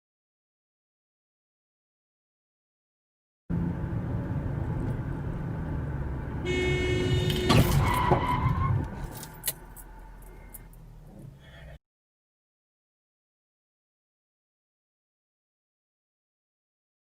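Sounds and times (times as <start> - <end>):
car driving: 3.5 - 11.8
car horn blaring: 6.4 - 8.8.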